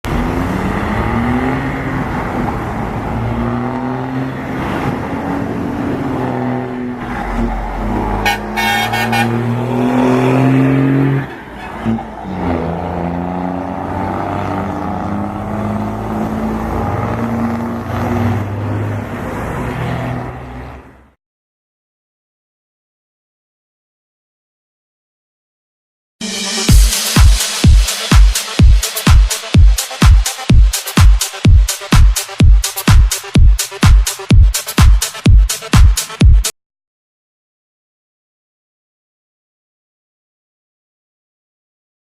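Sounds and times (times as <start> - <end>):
truck diesel engine revving: 0.1 - 21.0
pulsing horn toot: 8.1 - 10.2.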